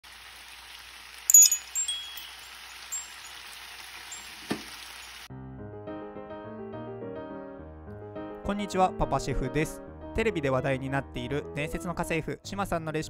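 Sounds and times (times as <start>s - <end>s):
stir-fry sizzling in a pan: 0.0s - 5.3s
bright chime-like clink: 1.3s - 5.2s
piano music: 5.3s - 13.0s.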